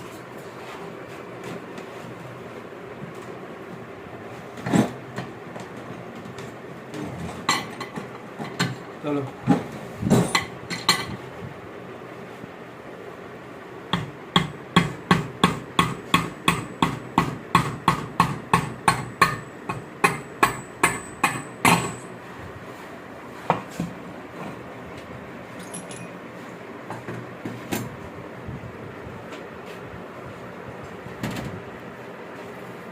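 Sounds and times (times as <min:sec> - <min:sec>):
hammer striking metal: 0:14.0 - 0:22.1.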